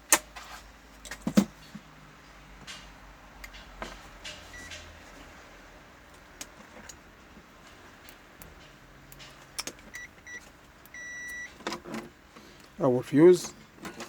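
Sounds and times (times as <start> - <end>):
multimeter buzzer beeping: 9.9 - 11.6.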